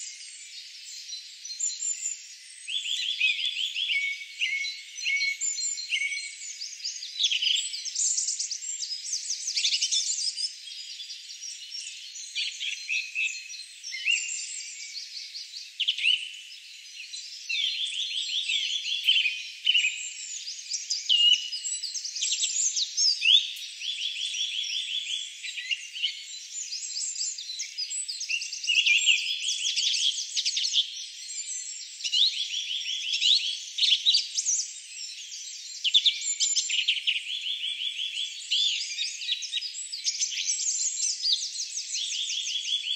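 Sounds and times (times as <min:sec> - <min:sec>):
songbirds trilling and chirping: 0:00.0 - 0:42.9.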